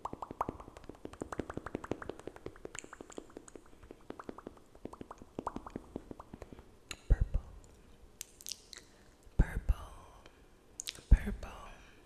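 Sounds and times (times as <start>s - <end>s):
wet mouth clicks: 0.0s - 9.0s, 10.8s - 11.1s.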